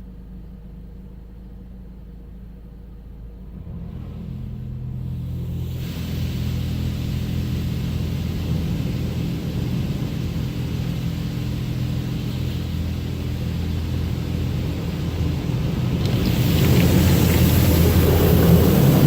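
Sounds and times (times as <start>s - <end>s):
car wash machinery rumble: 0.0s - 19.0s
hiss of water spray: 4.8s - 19.0s.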